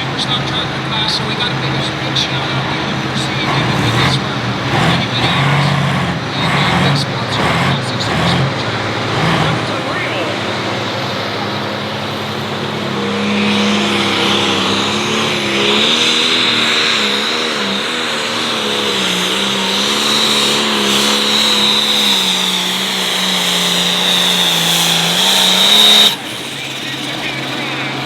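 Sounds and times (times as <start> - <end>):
diesel engine running hard: 0.0 - 28.0
high turbo whistle: 18.6 - 28.0.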